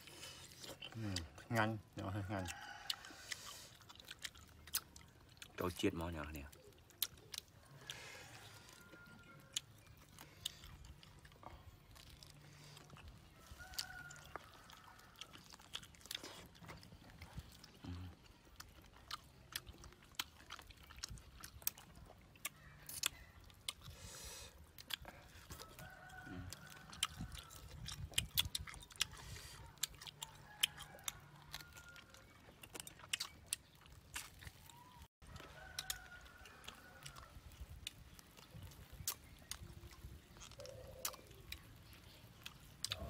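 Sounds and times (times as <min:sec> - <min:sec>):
chewing and biting meat: 0:00.0 - 0:43.0
mouth clicks and smacks: 0:27.0 - 0:30.8.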